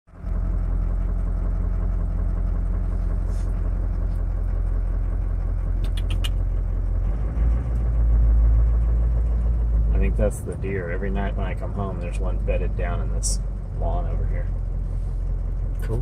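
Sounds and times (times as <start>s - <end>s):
vehicle engine humming: 0.1s - 16.0s
quick clicks: 5.8s - 6.4s.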